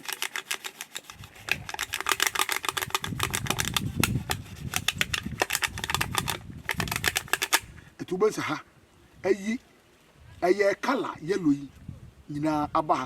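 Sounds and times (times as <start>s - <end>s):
leaves scrubbing metal rasping: 0.0s - 7.6s.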